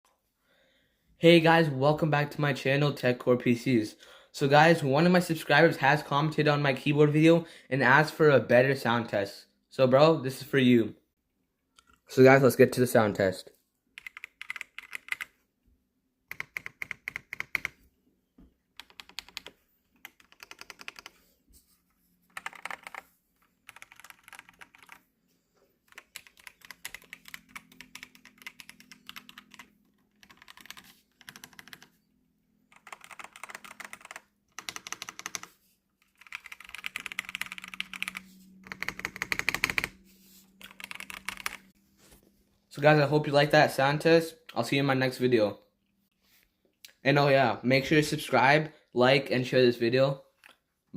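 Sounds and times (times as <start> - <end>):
mechanical keyboard typing: 14.0 - 15.4, 16.3 - 17.8, 18.8 - 21.2, 22.3 - 25.0, 25.9 - 31.9, 32.7 - 40.0, 40.6 - 41.6.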